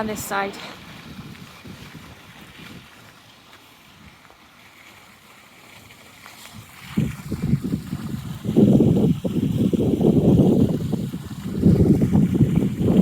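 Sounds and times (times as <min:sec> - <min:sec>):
outdoor hiss: 0:00.0 - 0:01.1
wind rumbling on microphone: 0:00.0 - 0:04.3, 0:06.4 - 0:13.0.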